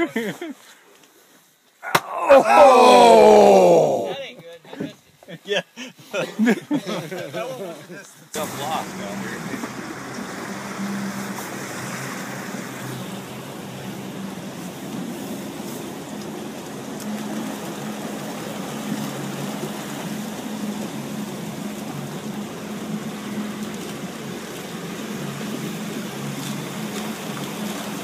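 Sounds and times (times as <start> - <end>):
wind: 0.0 - 28.0
water rushing: 1.8 - 4.3, 6.4 - 28.0
boat engine droning: 8.4 - 28.0.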